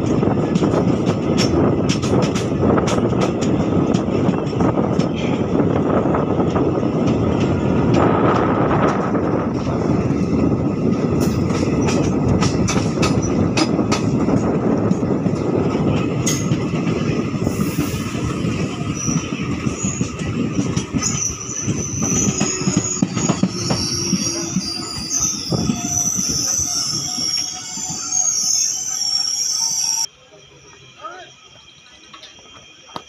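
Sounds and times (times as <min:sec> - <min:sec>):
train wheels rumbling on rails: 0:00.0 - 0:33.0
wheel and brake squeal: 0:17.5 - 0:30.1.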